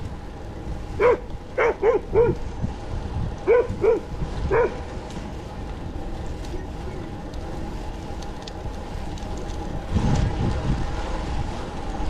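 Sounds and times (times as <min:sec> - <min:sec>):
low rumble of wind: 0:00.0 - 0:12.0
dog barking: 0:01.0 - 0:02.4, 0:03.5 - 0:04.8.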